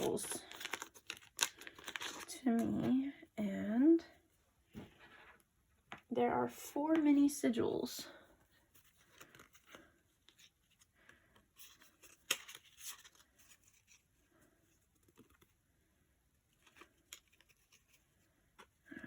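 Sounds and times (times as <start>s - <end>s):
paper and packaging rustling: 0.0s - 3.0s, 8.6s - 15.6s.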